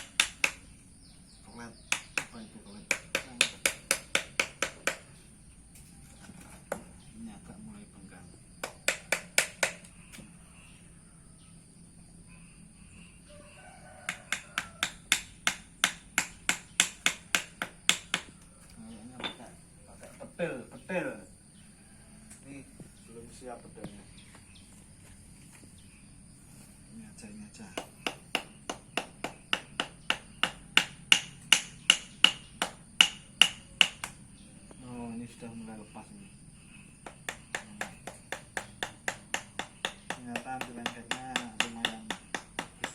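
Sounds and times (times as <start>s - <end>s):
tapping on a mold: 0.0s - 0.7s, 1.8s - 5.1s, 8.6s - 10.2s, 14.1s - 18.5s, 27.7s - 34.2s, 37.0s - 42.9s.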